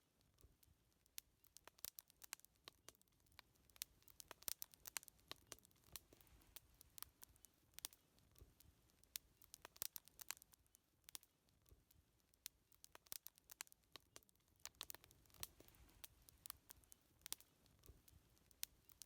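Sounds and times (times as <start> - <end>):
wood fire crackling quietly: 0.0 - 19.0.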